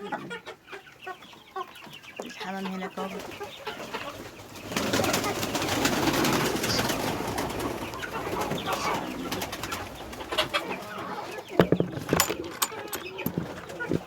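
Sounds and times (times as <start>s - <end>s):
pigeons cooing: 0.0s - 14.0s
rustling and small clatters: 11.3s - 14.0s.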